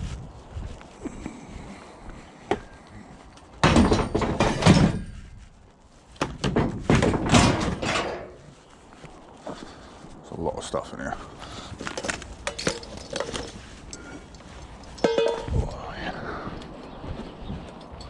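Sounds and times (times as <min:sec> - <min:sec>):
metal banging and clattering: 0:03.6 - 0:05.3, 0:06.2 - 0:08.4, 0:11.9 - 0:13.6, 0:14.9 - 0:15.6.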